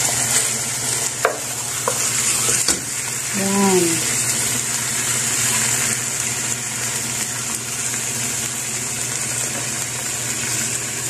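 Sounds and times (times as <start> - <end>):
chicken and onion sizzling in oil: 0.0 - 11.0.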